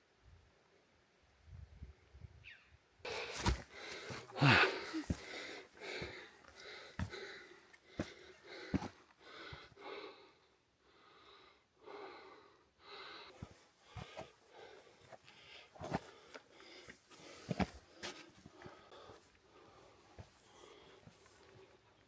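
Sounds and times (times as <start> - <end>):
footsteps on rock: 3.1 - 9.6, 13.4 - 14.3, 15.0 - 19.2
person breathing heavily: 3.1 - 21.7.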